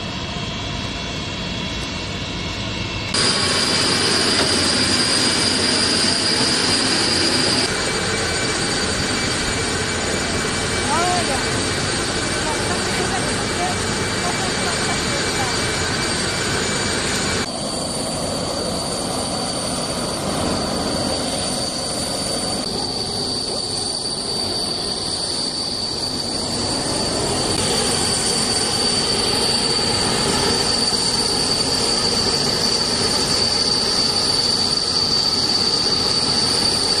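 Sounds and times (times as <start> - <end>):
jet engines rushing and whining: 0.0 - 37.0.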